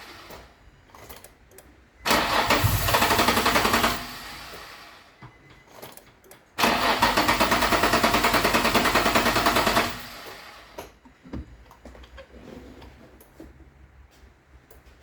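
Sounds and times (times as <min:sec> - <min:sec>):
car engine cranking on starter: 0:02.0 - 0:05.0, 0:06.6 - 0:10.6.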